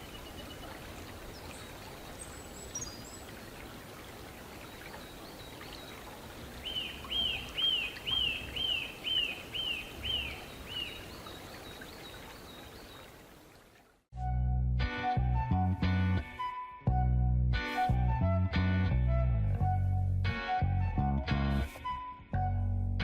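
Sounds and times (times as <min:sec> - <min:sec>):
bird whistling song: 0:06.6 - 0:13.0
guitar music: 0:14.2 - 0:23.0.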